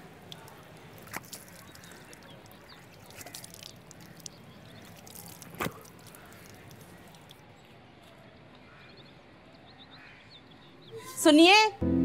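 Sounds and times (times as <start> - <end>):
water splashing and dripping: 0.0 - 7.4.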